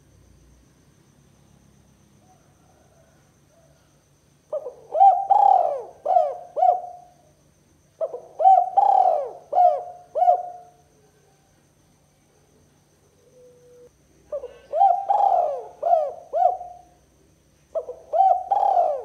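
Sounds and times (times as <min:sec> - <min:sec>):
dove cooing: 0:04.5 - 0:07.2, 0:08.0 - 0:10.8, 0:13.2 - 0:17.0, 0:17.7 - 0:19.0.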